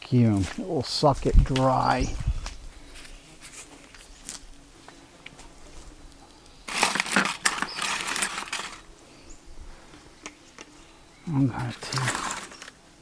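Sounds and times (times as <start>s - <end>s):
crunching and crackling: 1.2s - 8.9s, 11.6s - 12.8s.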